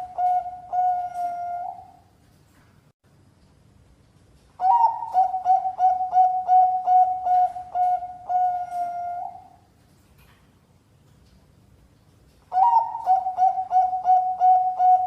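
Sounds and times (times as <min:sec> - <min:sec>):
dove cooing: 0:00.0 - 0:02.1, 0:04.6 - 0:09.7, 0:12.5 - 0:15.0.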